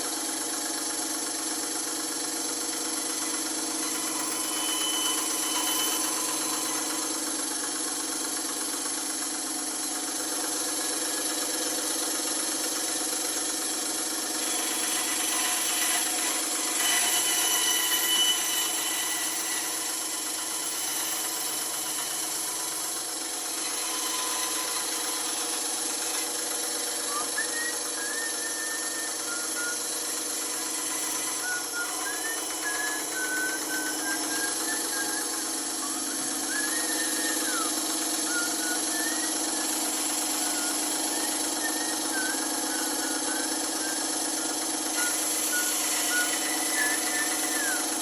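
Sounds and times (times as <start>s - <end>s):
bandsaw running: 0.0s - 48.0s
faint wavering high tone: 3.2s - 7.3s, 14.4s - 48.0s.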